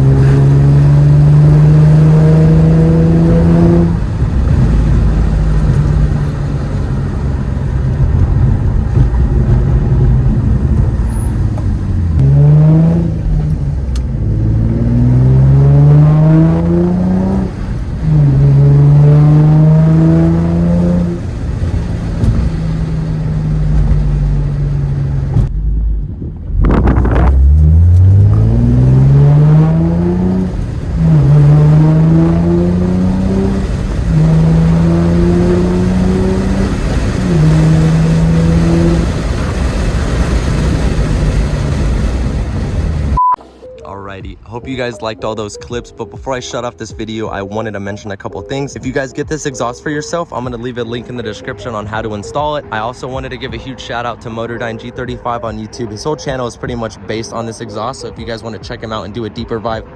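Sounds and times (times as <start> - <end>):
car engine accelerating through gears: 0.0 - 43.2.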